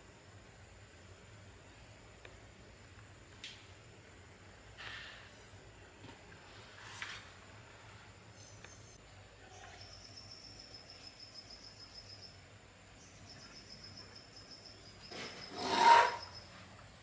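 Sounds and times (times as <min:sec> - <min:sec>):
high-pitched insect trill: 0:09.6 - 0:12.4, 0:13.0 - 0:16.6.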